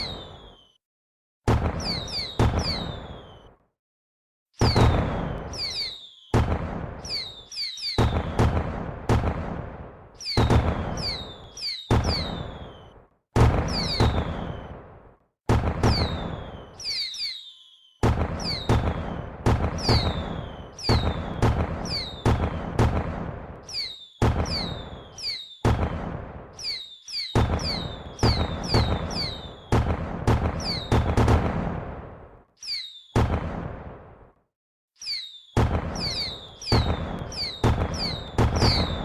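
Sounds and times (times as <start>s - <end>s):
falling whistle: 0.0s - 0.8s, 1.8s - 3.6s, 4.6s - 8.4s, 10.2s - 13.0s, 13.7s - 14.8s, 15.9s - 22.2s, 23.6s - 25.6s, 26.6s - 29.7s, 32.6s - 33.3s, 35.0s - 39.0s
fireworks bursting: 0.0s - 0.8s, 1.5s - 3.6s, 4.6s - 34.0s, 35.0s - 39.0s.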